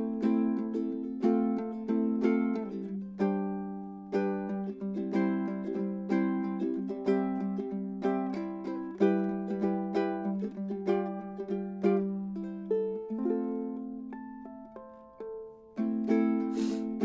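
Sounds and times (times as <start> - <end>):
fingerpicked ukulele: 0.0 - 17.0
brushing scrape: 16.6 - 16.9.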